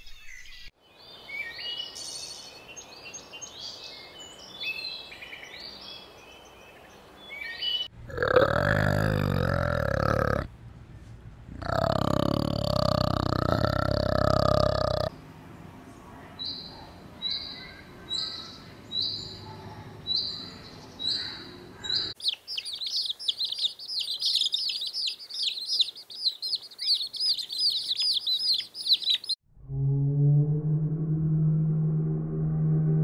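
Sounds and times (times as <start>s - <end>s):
rapid chirping of many birds: 16.2s - 29.4s.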